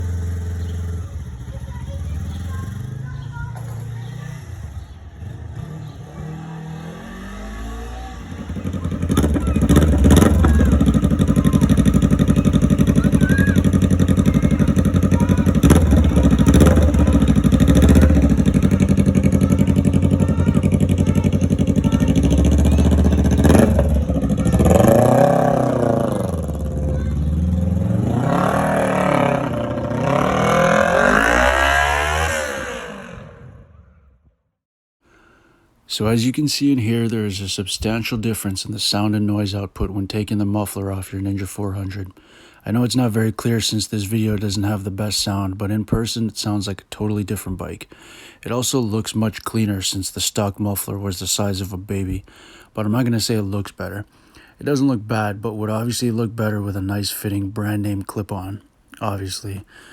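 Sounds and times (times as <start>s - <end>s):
sharp exhaust cracks: 0.0s - 33.8s
motorcycle engine revving: 0.0s - 34.2s.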